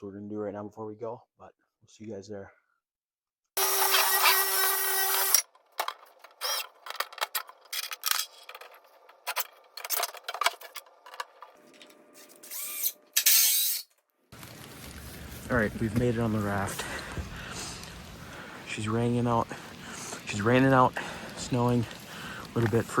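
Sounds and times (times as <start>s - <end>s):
power drill driving fasteners: 3.6s - 5.5s, 6.3s - 8.3s, 12.2s - 13.9s.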